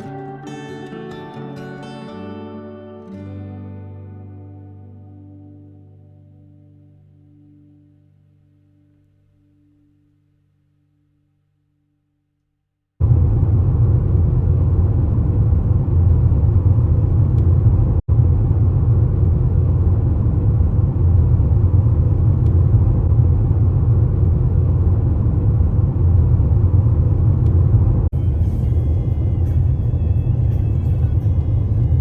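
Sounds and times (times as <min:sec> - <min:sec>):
music: 0:00.0 - 0:11.6, 0:28.2 - 0:32.0
vehicle rumble: 0:13.0 - 0:32.0.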